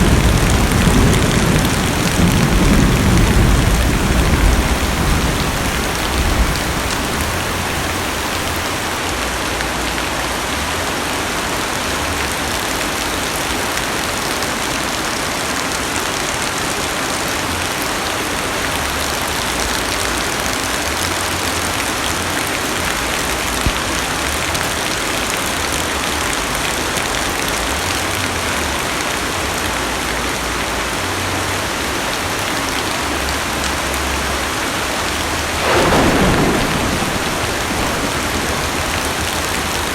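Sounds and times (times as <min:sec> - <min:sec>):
thunder rumble: 0:00.0 - 0:09.0, 0:34.8 - 0:39.9
heavy rain on car roof: 0:00.0 - 0:39.9.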